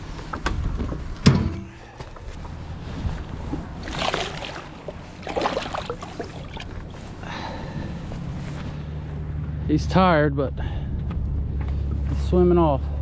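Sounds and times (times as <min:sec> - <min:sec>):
water splashes: 0:03.6 - 0:07.2.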